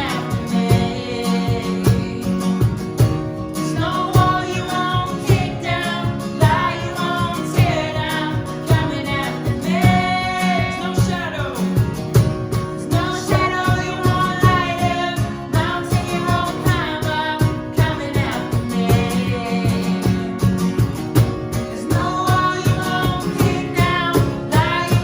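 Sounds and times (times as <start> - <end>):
woman singing: 0.0 - 11.8, 12.8 - 20.5, 21.8 - 25.0
steady drum beat: 0.0 - 25.0
worship band playing: 0.0 - 25.0.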